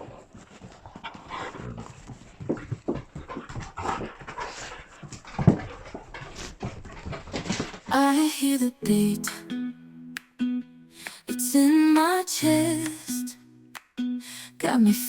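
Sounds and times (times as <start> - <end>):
puppy panting: 0.0 - 7.5.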